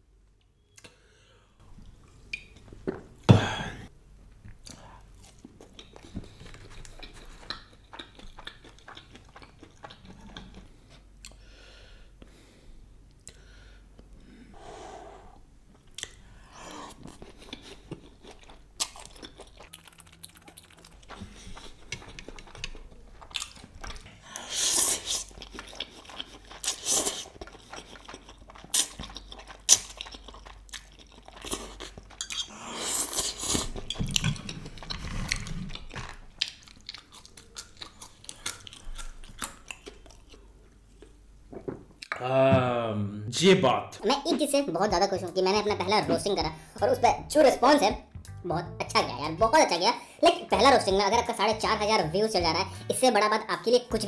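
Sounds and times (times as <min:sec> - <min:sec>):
person chewing and slurping noodles: 0:04.6 - 0:11.4, 0:16.0 - 0:42.1
small mouth clicks: 0:15.9 - 0:16.2.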